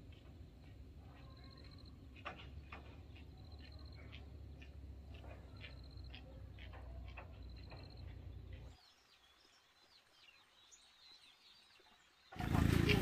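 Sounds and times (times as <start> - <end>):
birds chirping and trilling: 0.0 - 13.0
bird warbling song: 0.1 - 13.0.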